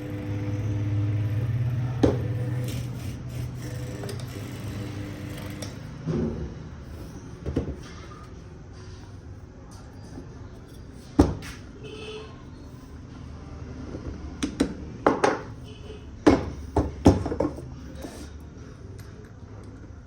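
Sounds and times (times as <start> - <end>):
parts knocking and clacking: 14.0 - 15.6, 16.2 - 18.4.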